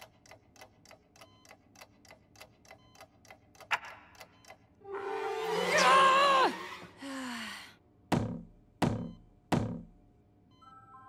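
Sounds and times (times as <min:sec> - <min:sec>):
clock ticking: 0:00.0 - 0:04.7.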